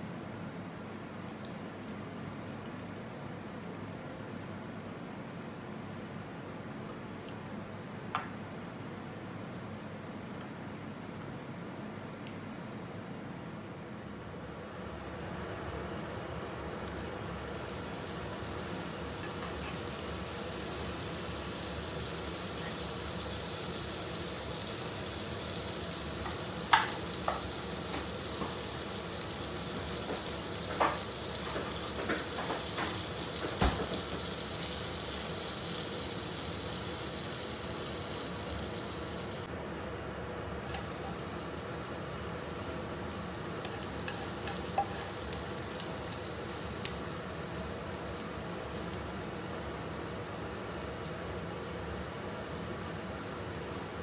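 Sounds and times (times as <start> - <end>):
butter sizzling in wok: 16.6 - 39.5, 40.6 - 54.0.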